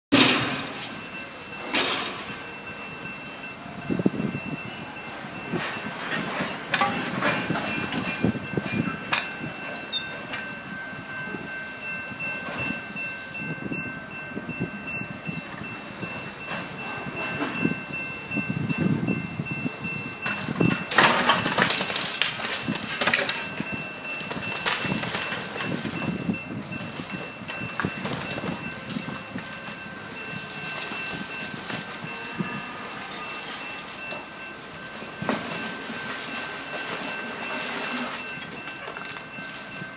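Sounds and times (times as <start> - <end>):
debris knocking and crashing: 20.3 - 23.6.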